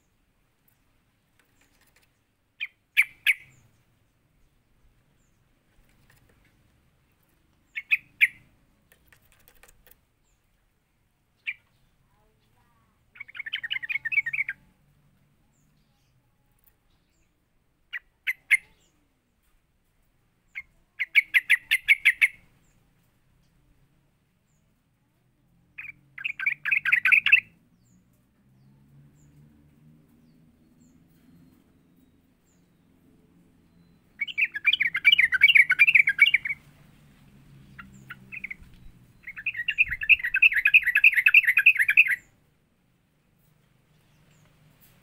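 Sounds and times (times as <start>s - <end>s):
bird chattering phrase: 2.6s - 3.6s, 7.7s - 8.5s, 13.1s - 14.6s, 17.9s - 19.0s, 20.6s - 22.5s, 34.2s - 36.6s, 39.2s - 42.3s
bulbul calling: 2.6s - 3.8s, 7.7s - 8.5s, 13.1s - 14.6s, 20.6s - 22.5s, 25.8s - 27.6s, 33.7s - 36.7s, 37.7s - 42.4s.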